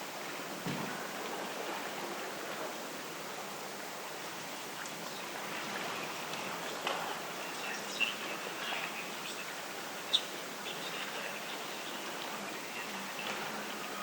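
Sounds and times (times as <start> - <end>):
sea wash: 0.0 - 14.0.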